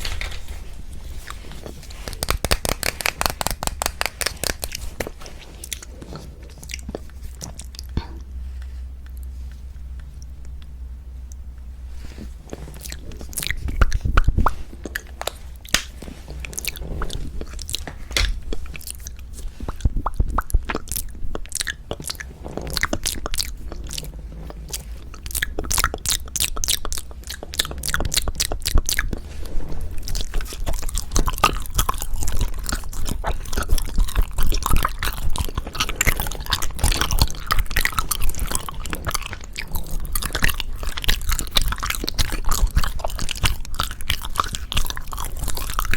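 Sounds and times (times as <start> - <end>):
chewing mouth clicks: 30.1 - 45.9.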